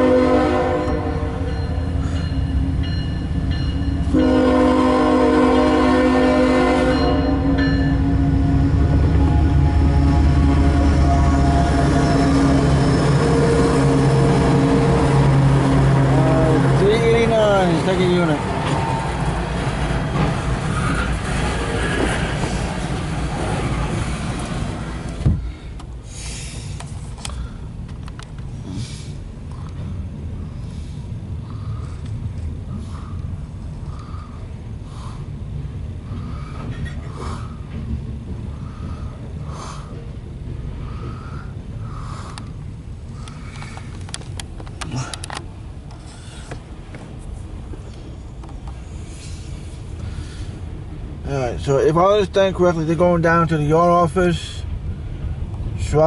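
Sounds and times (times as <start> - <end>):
diesel locomotive horn: 0.0 - 2.0, 4.0 - 17.8
low rumble of train: 0.0 - 56.0.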